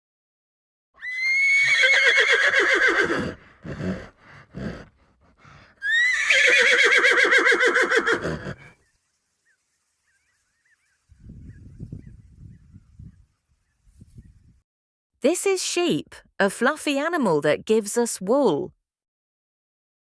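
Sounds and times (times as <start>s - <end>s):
horse whinnying: 1.0s - 5.0s, 5.8s - 8.8s
horse breathing: 2.9s - 6.7s, 8.2s - 8.9s.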